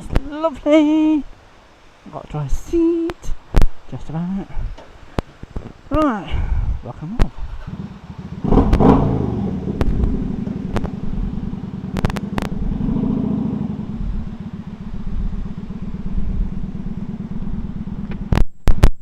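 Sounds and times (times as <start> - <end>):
motorcycle engine revving: 7.4 - 18.4
sharp clicks: 9.8 - 11.0, 11.9 - 12.6.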